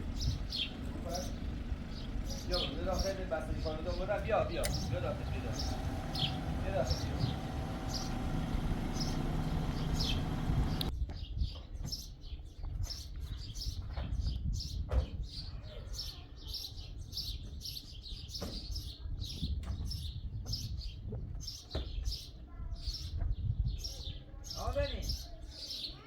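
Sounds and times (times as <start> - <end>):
low rumble: 0.0 - 10.9
small birds chirping: 0.0 - 26.0.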